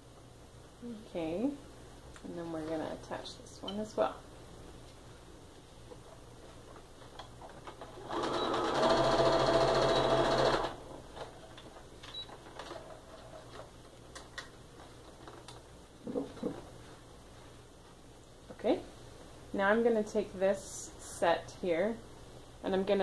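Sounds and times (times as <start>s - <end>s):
electric sewing machine running: 7.9s - 10.8s.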